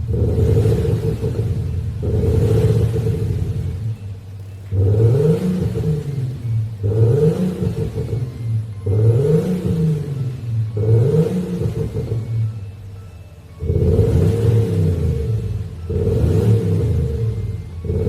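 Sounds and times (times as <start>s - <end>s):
car exhaust revving: 0.0s - 18.0s.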